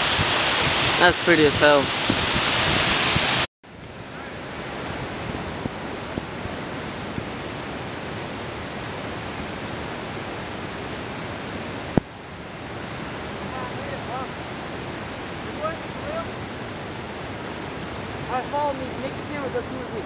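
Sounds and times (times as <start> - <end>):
water pouring over dam: 0.0 - 3.5.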